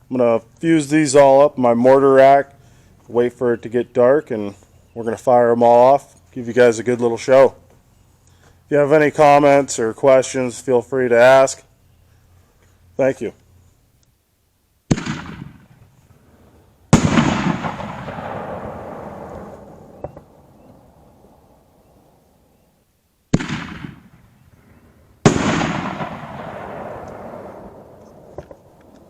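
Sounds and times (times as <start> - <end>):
mortar launch bang: 14.9 - 15.8, 16.9 - 20.4, 23.3 - 24.3, 25.2 - 28.6.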